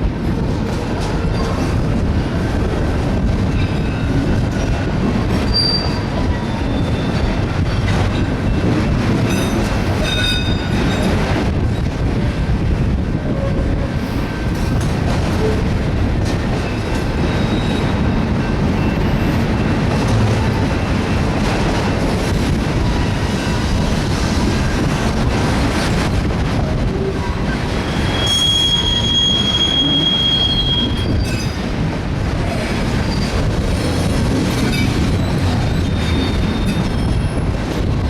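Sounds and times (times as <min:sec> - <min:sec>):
freight train wheels rumbling: 0:00.0 - 0:38.0
high wheel squeals: 0:05.5 - 0:07.3, 0:17.2 - 0:19.4, 0:27.8 - 0:31.6, 0:35.1 - 0:37.3.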